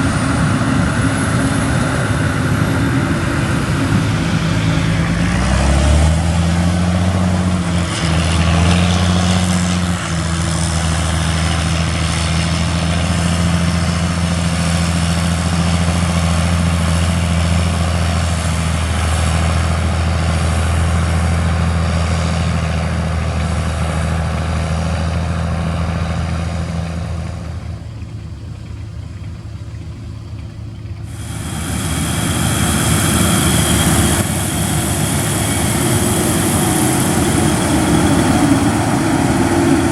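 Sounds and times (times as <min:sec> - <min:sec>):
farm machinery engine humming: 0:00.0 - 0:39.9
hiss: 0:31.1 - 0:39.9.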